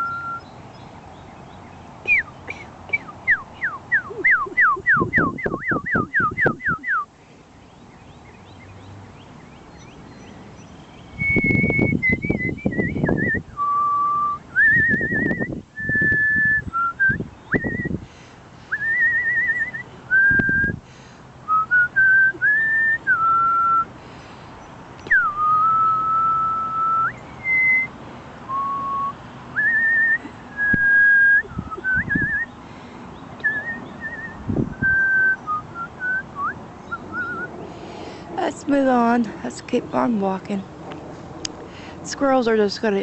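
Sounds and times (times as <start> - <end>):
person whistling bird calls: 0.0 - 0.5, 2.1 - 7.1, 11.1 - 18.0, 18.7 - 20.8, 21.5 - 23.9, 25.0 - 27.9, 28.5 - 32.5, 33.4 - 37.5.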